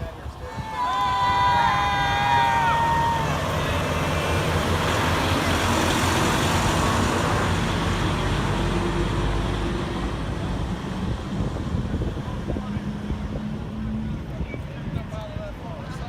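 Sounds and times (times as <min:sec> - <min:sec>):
road traffic noise: 0:00.0 - 0:16.0
vehicle driving past: 0:02.5 - 0:14.3
truck engine running: 0:02.6 - 0:14.2.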